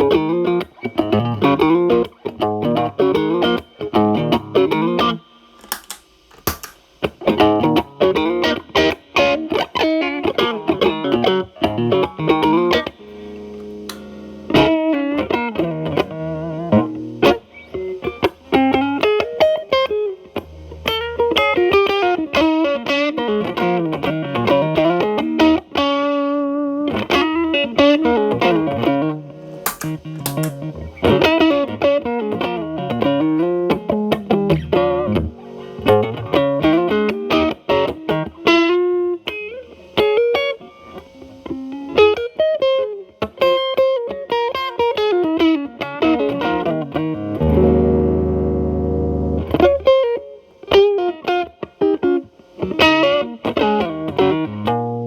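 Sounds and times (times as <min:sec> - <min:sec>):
distorted electric guitar lead: 0:05.6 - 0:55.0.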